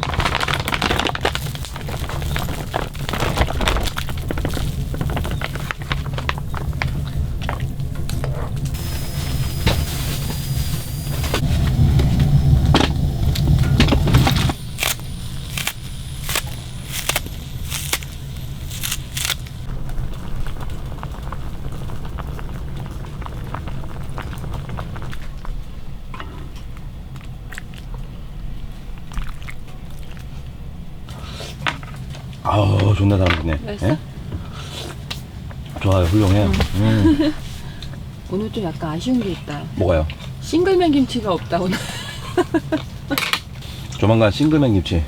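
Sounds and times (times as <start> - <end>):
food cooking in a pan: 0.0 - 26.1
low rumble: 0.0 - 31.1.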